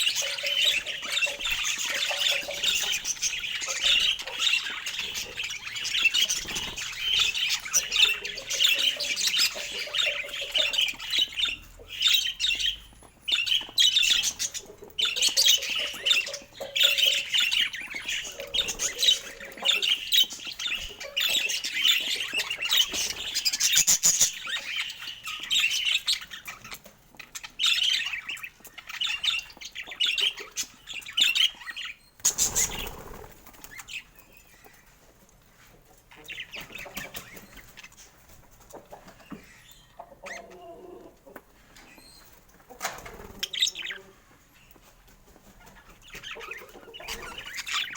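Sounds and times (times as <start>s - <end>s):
budgerigar chatter: 0.0s - 12.8s.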